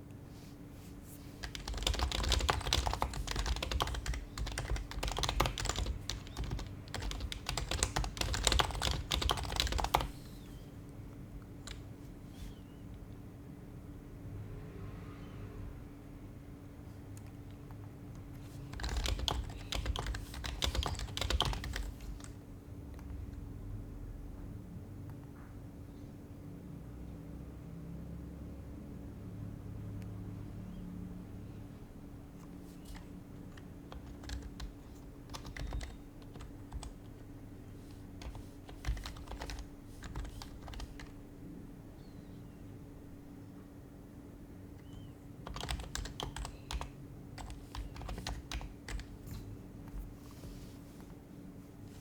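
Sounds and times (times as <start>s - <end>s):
keyboard typing: 1.4s - 10.6s, 11.4s - 12.0s, 17.1s - 22.4s, 32.7s - 41.2s, 44.7s - 50.6s.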